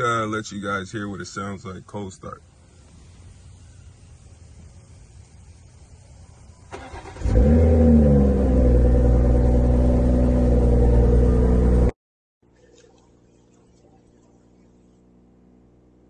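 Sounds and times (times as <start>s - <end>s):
car engine cranking: 6.7s - 11.9s
car engine revving and idling: 6.9s - 11.9s.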